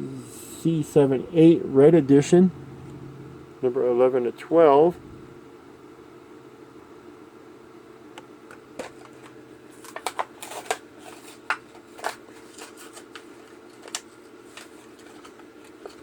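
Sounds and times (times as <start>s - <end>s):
low room hum: 0.0s - 16.0s
plastic packaging crackling: 8.8s - 16.0s.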